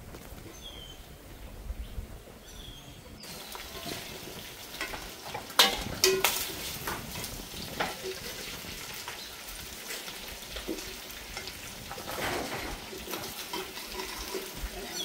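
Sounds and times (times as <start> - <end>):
chicken frying sizzle: 3.2 - 15.0.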